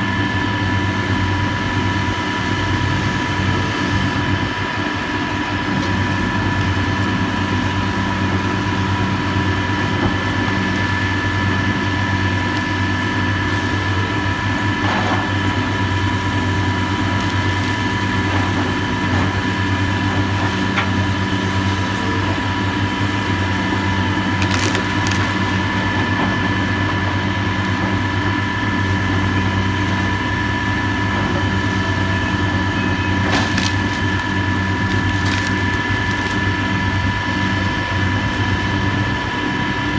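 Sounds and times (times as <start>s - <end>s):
demolition machine engine running: 0.0s - 39.9s
debris breaking cracks: 24.4s - 25.5s, 33.3s - 36.5s.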